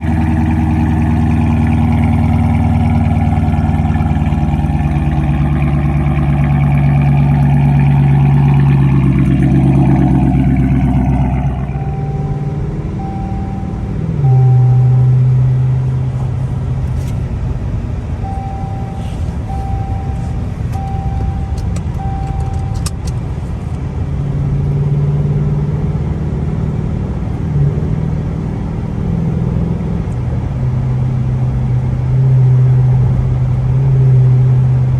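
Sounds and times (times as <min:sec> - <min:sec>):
loud car exhaust droning: 0:00.0 - 0:34.9
short evenly spaced beeps: 0:10.8 - 0:15.6, 0:18.2 - 0:22.9.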